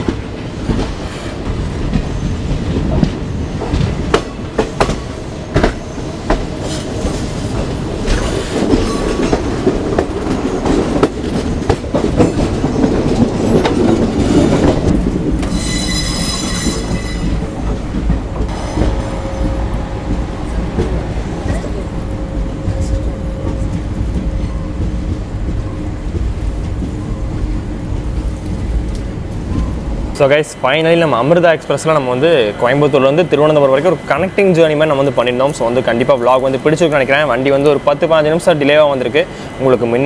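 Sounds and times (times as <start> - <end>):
train rumbling on rails: 0.0 - 40.0
high-pitched wheel squeal: 15.4 - 17.4.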